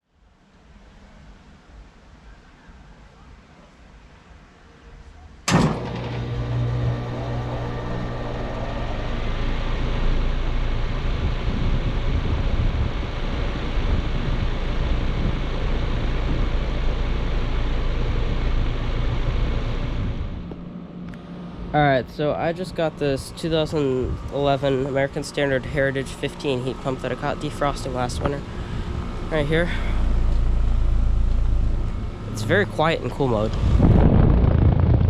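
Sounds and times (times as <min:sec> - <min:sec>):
fan noise: 0:00.0 - 0:35.0
heat pump low hum: 0:00.2 - 0:35.0
heat pump starting strike: 0:05.4 - 0:35.0.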